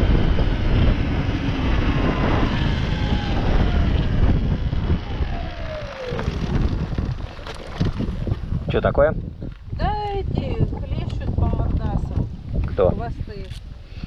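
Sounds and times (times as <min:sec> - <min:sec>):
electric motor whine: 0:00.0 - 0:08.7
wind buffeting microphone: 0:00.0 - 0:14.0.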